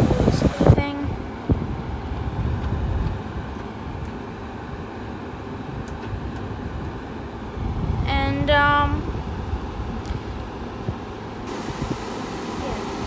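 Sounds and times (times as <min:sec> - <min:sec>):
air conditioner rushing air: 0:00.0 - 0:13.0
low motor rumble: 0:11.5 - 0:13.0.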